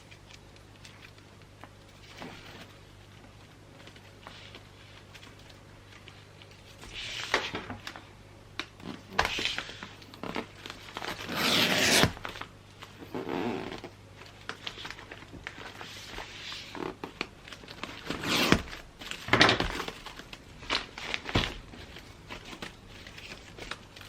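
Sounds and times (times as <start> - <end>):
paper rustling: 0.0 - 8.0, 14.2 - 24.0.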